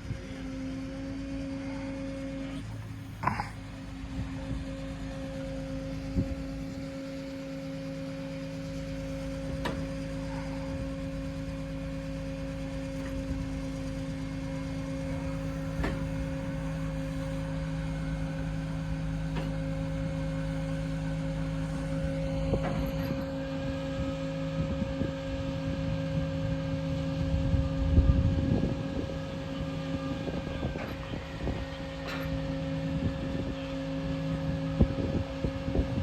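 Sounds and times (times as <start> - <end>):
truck engine and hydraulic crane hum: 0.0 - 36.0.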